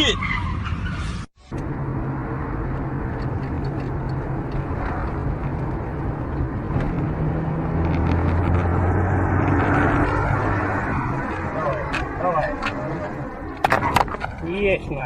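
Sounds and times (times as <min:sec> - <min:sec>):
car engine humming: 0:00.0 - 0:15.0
road noise: 0:00.0 - 0:15.0.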